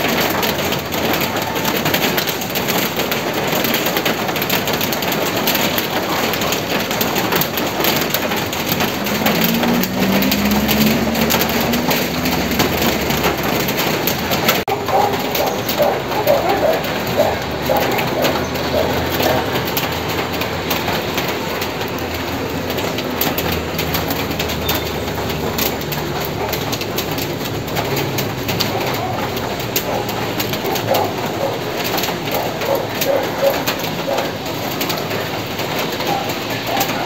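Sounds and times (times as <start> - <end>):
drips ticking on surfaces: 0.0 - 37.0
steady rain falling: 0.0 - 37.0
bird calling: 14.8 - 19.6.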